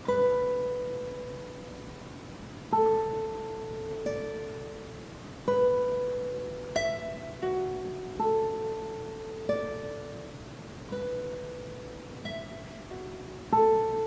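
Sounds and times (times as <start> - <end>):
plucked guitar notes: 0.0 - 2.1, 2.7 - 14.0.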